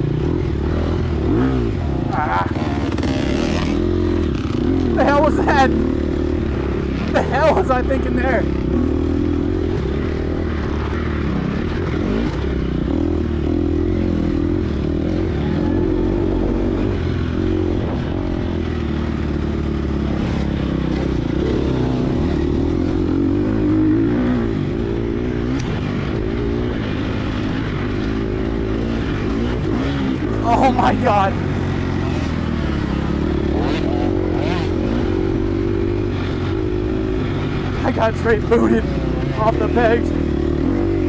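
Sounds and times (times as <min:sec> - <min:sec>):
dirt bike engine running hard: 0:00.5 - 0:11.0.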